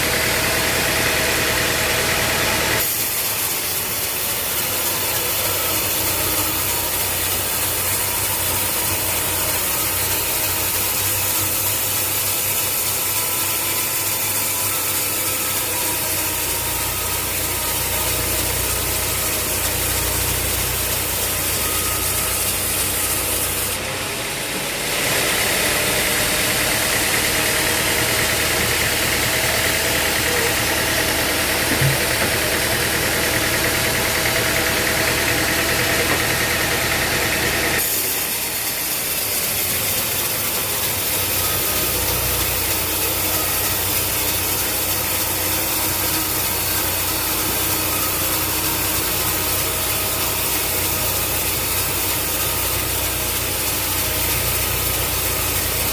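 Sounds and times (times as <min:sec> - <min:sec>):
sawmill machinery humming: 0:00.0 - 0:55.9
hiss: 0:02.8 - 0:23.7, 0:37.8 - 0:55.9.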